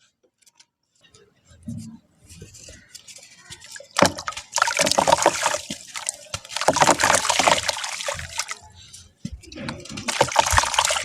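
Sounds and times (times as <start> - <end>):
wet sand crumbling into water: 3.8 - 8.6, 9.7 - 11.0.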